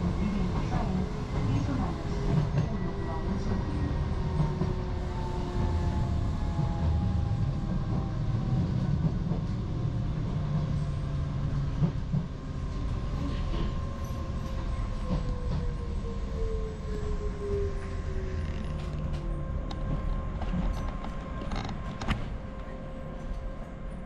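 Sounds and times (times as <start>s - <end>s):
train rumble: 0.0s - 24.0s.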